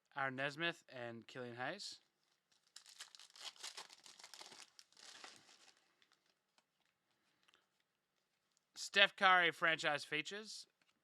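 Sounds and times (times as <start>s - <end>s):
wrapper crinkling and tearing: 2.5s - 6.6s.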